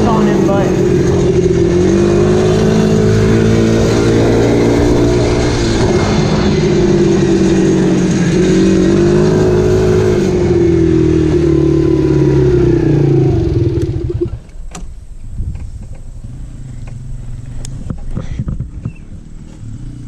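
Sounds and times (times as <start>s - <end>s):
dirt bike engine revving: 0.0s - 14.5s.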